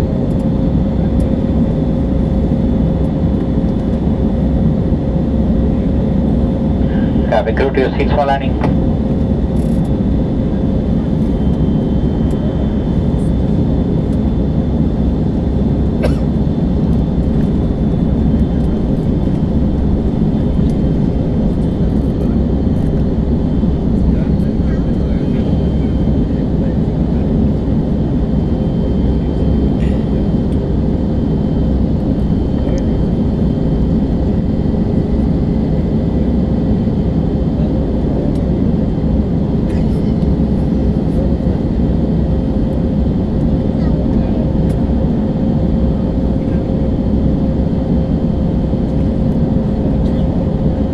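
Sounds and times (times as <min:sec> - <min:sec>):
airliner cabin rumble: 0:00.0 - 0:50.9
faint steady whine: 0:05.6 - 0:13.6.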